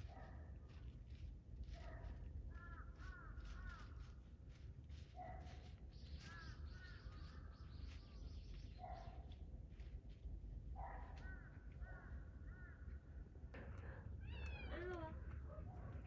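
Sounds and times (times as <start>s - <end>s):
faint distant bird calls: 5.2s - 9.9s, 10.8s - 16.0s
low outdoor rumble: 9.3s - 16.0s.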